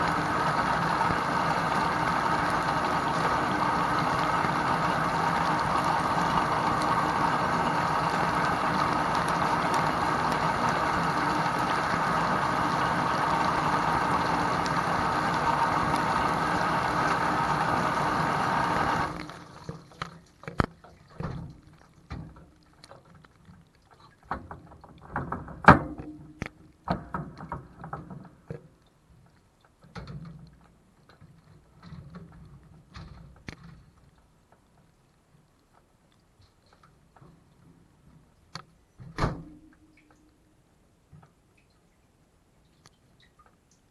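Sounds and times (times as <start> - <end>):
dishwasher pump and water spraying: 0.0 - 20.6.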